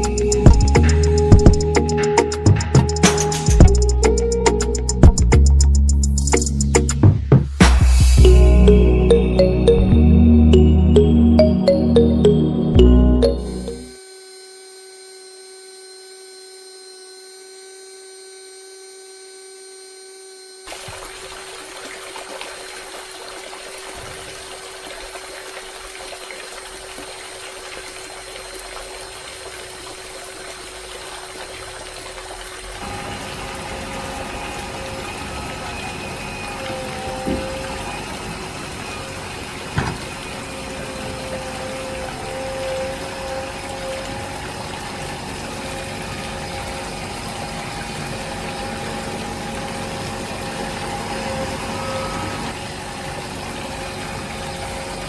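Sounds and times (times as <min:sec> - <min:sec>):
small motor high-pitched hum: 0:13.4 - 0:21.7, 0:22.6 - 0:55.0.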